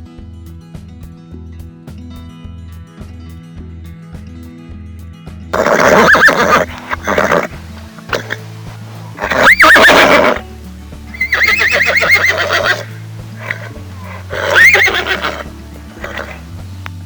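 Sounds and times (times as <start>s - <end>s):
horse whinnying: 5.6s - 8.5s, 9.1s - 10.4s, 11.1s - 16.5s.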